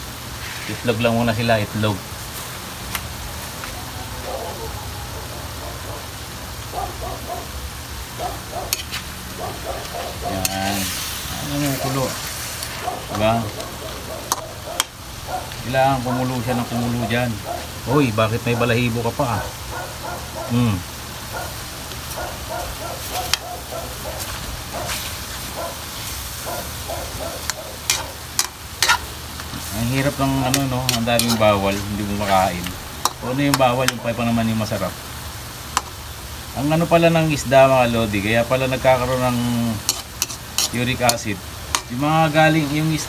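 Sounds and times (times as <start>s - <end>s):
faint steady hiss: 0.0s - 43.0s
light sizzling: 0.0s - 43.0s
animal calling: 3.6s - 12.1s, 12.7s - 29.2s
spatula stirring in wok: 8.7s - 9.2s, 22.7s - 34.3s, 39.2s - 42.8s.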